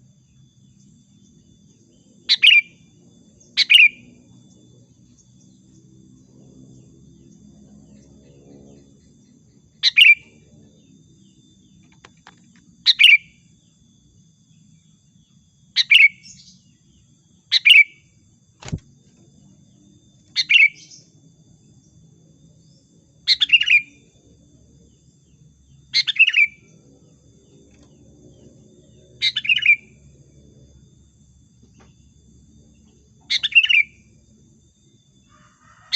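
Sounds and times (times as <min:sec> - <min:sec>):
bird chirping calls: 0:02.3 - 0:02.8, 0:03.6 - 0:04.0, 0:08.0 - 0:10.4, 0:11.6 - 0:13.3, 0:15.8 - 0:17.9, 0:20.4 - 0:21.1, 0:23.3 - 0:24.0, 0:26.0 - 0:26.7, 0:29.2 - 0:29.9, 0:33.3 - 0:34.0.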